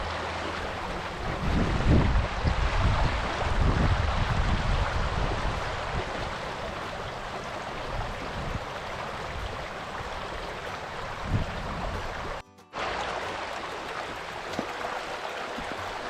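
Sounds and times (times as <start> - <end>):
wind buffeting microphone: 0.0 - 12.4
river rushing: 0.0 - 16.0.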